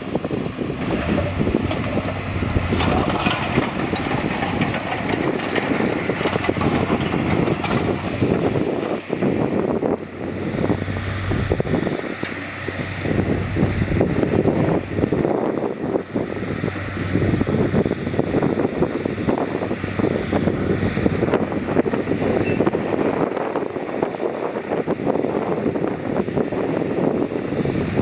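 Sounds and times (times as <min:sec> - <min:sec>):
diesel machinery engine drone: 0:00.0 - 0:28.0
metal and rock clanking: 0:00.6 - 0:09.0.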